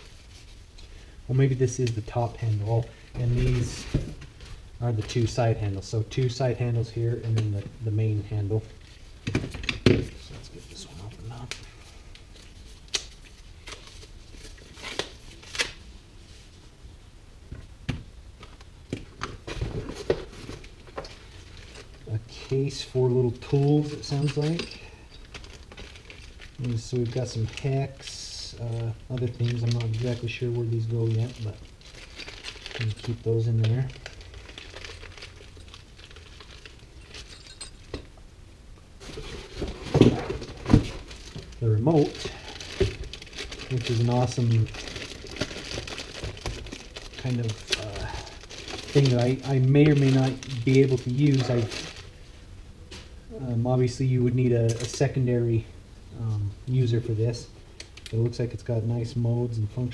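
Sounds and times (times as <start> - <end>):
soft rustling: 0.0 - 9.2
small parts and packaging rattling: 18.4 - 38.2, 39.0 - 53.1, 54.7 - 55.2.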